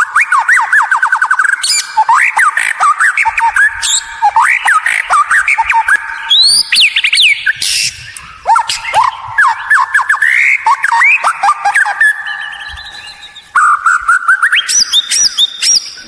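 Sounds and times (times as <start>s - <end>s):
songbird whistling and clicking: 0.0s - 16.0s.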